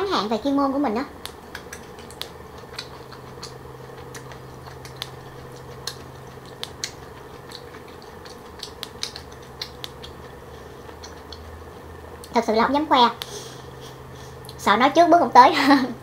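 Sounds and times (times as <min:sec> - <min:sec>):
low hum: 0:00.0 - 0:16.0
crunchy chewing: 0:01.2 - 0:12.3.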